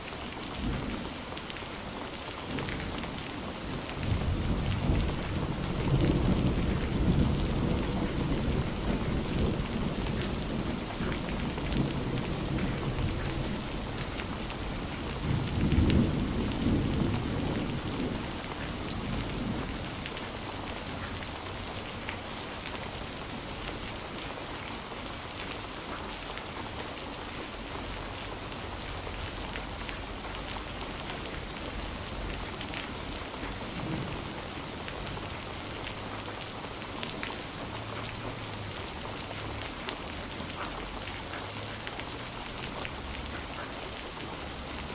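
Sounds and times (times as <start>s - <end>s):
raindrops ticking: 0.0s - 44.9s
steady rain falling: 0.0s - 44.9s
low roll of thunder: 3.7s - 20.6s, 33.4s - 35.3s.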